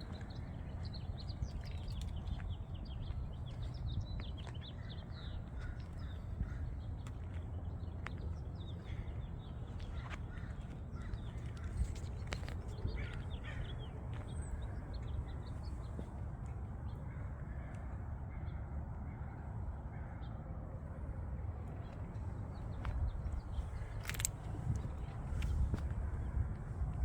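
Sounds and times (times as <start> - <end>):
steady low rumble: 0.0 - 27.0
birds calling faintly: 21.7 - 26.6.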